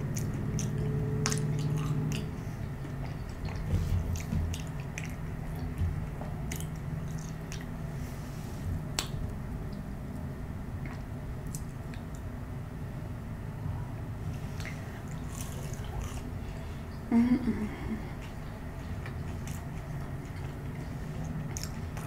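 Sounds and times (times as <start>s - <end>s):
chewing with mouth smacks: 0.0s - 8.0s, 10.8s - 12.3s, 14.3s - 17.1s, 18.0s - 22.0s.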